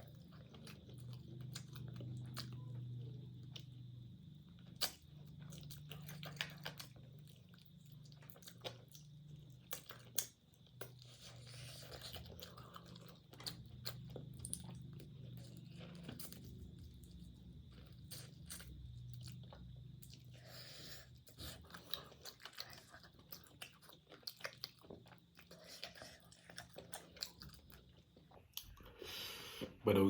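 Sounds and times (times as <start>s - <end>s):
chewing crisp food: 0.0s - 29.1s.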